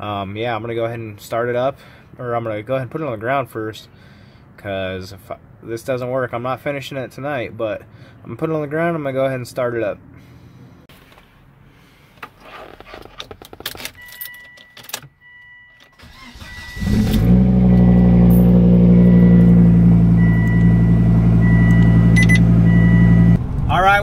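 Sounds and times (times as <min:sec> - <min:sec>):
car engine starting and idling: 0:13.2 - 0:24.0
door-open warning chime: 0:13.9 - 0:17.3, 0:20.2 - 0:23.4.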